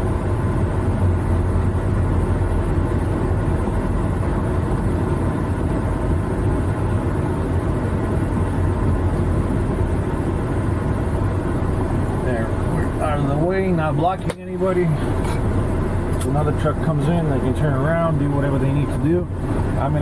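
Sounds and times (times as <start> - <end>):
diesel truck engine humming: 0.0 - 20.0.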